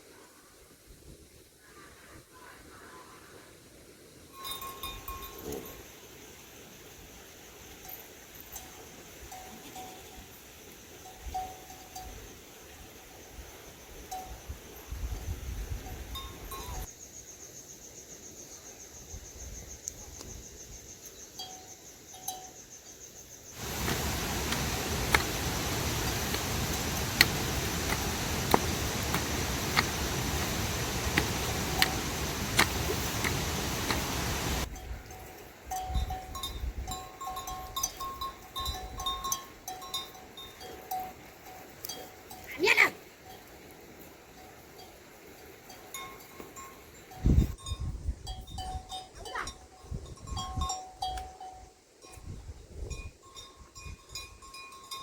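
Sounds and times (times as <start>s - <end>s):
livestock bells tinkling: 4.3s - 5.9s, 7.7s - 10.4s, 11.0s - 12.4s, 14.1s - 14.5s, 15.8s - 16.9s, 21.4s - 22.7s, 23.6s - 55.0s
steady rain: 23.6s - 34.7s
water drip ticks: 23.6s - 34.7s.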